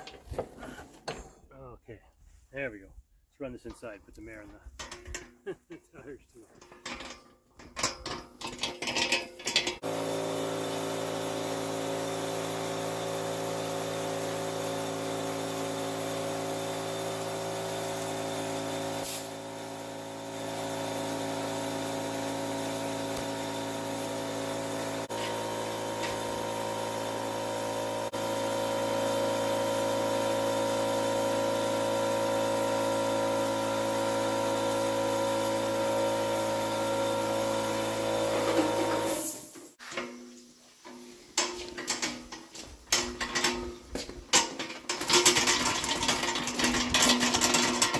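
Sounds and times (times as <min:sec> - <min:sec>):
metal clanks: 0:06.6 - 0:09.8, 0:39.8 - 0:47.9
machine motor humming: 0:14.7 - 0:39.1.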